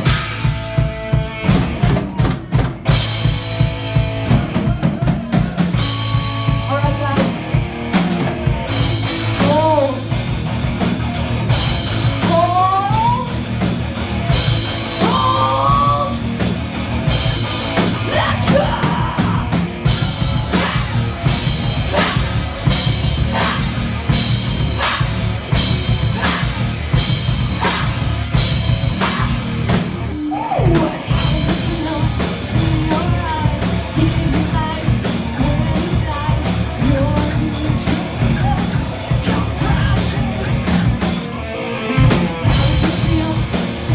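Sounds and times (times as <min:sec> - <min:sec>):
distorted guitars and bass: 0:00.0 - 0:43.9
pounding drum kit: 0:00.0 - 0:43.9
sliding vocals: 0:14.9 - 0:16.4, 0:17.8 - 0:25.2.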